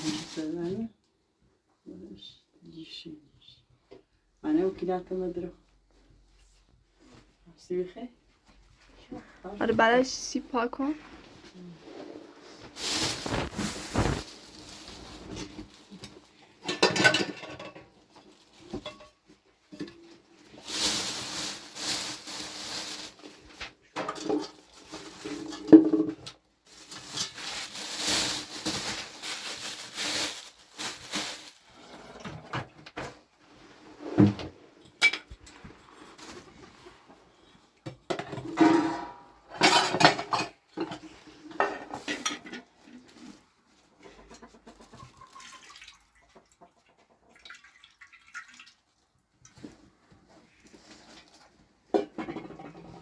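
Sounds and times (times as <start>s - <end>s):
dishes and cutlery clinking: 16.6s - 17.9s, 38.1s - 41.0s.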